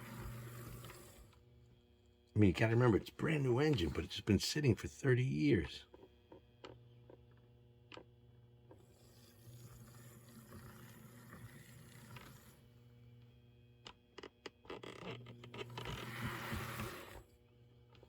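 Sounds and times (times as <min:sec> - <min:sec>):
model train motor whirring: 0:00.0 - 0:01.4, 0:08.8 - 0:12.6, 0:15.6 - 0:17.3
steady low hum: 0:00.1 - 0:07.7.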